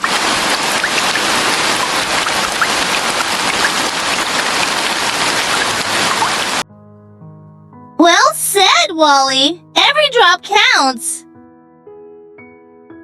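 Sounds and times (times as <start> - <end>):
rain hissing: 0.0 - 6.6.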